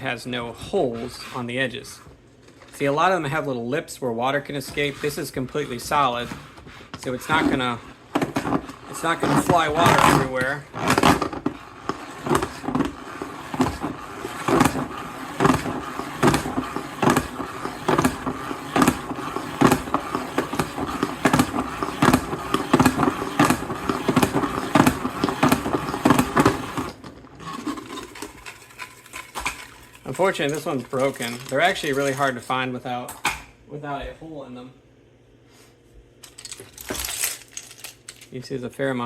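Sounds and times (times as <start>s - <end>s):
plastic bricks rattling in salad spinner: 4.6s - 32.6s, 36.2s - 38.4s.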